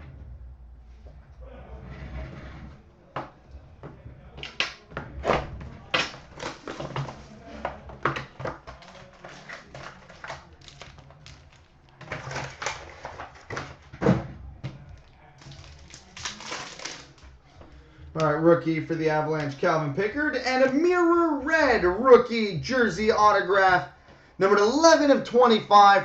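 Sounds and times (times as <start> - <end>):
cards and wrappers rustling: 4.4 - 20.8.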